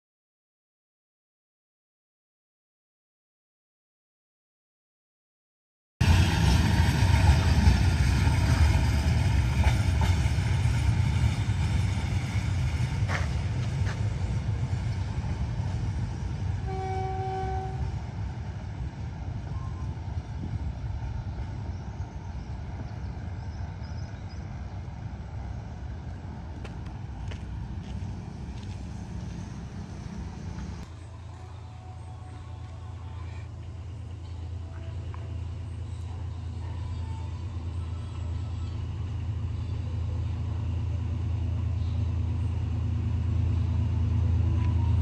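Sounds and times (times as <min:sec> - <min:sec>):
train rumbling past: 0:06.0 - 0:45.0
train clank: 0:06.1 - 0:15.2
train horn toot: 0:16.6 - 0:18.0.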